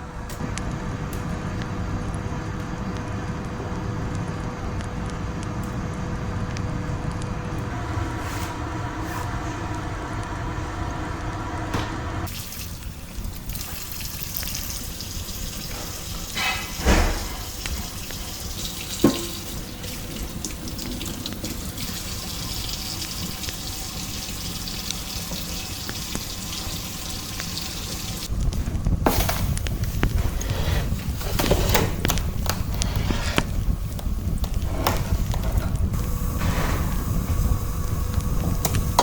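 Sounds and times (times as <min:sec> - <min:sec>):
water running: 0:07.6 - 0:28.4.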